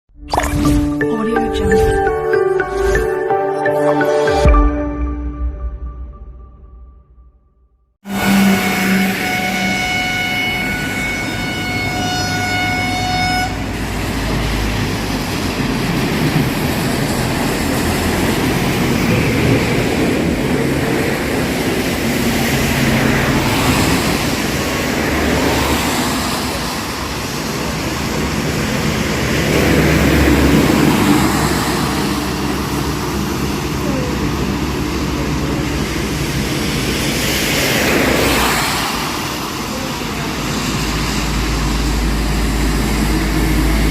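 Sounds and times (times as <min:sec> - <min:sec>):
vehicle horn: 0:08.1 - 0:13.7
tyres on wet road: 0:08.1 - 0:43.9
heavy rain: 0:13.6 - 0:43.9.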